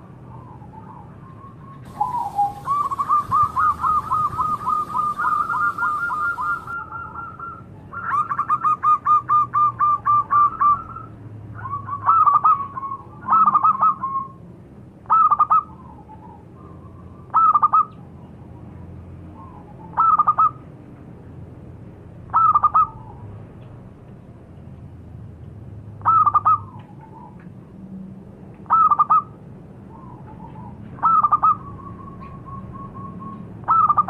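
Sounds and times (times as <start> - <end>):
dove cooing: 1.9 - 10.9, 30.0 - 34.0.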